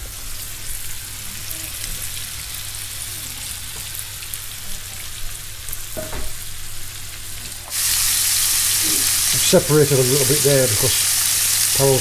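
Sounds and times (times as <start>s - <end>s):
fish sizzling in oil: 0.0s - 12.0s.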